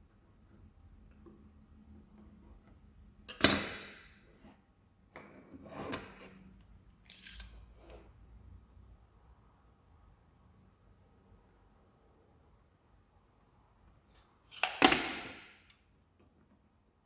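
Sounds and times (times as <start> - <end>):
tool scraping wood: 5.2 - 6.5.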